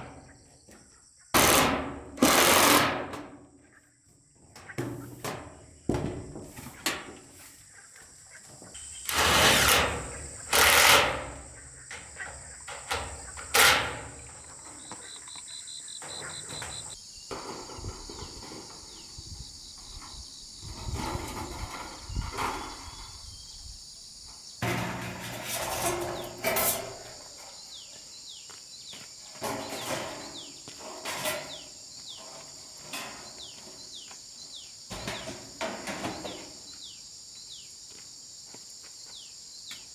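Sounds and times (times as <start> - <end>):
knocks and scrapes of handwork: 8.7 - 15.1, 29.4 - 31.7
high insect drone: 8.7 - 39.9.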